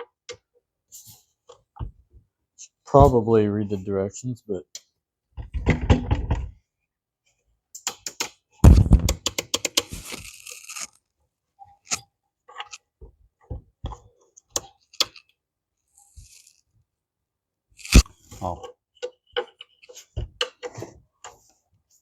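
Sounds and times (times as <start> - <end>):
packaging crinkling and rustling: 9.9 - 11.0.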